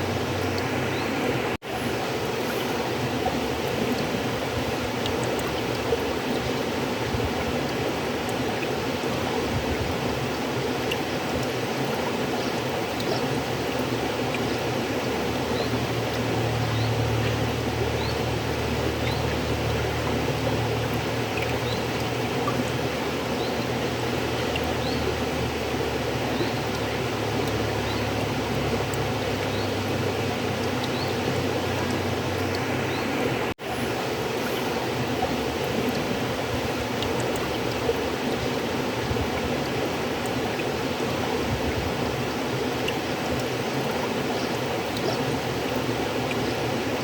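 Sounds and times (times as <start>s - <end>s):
river water flowing: 0.0s - 47.0s.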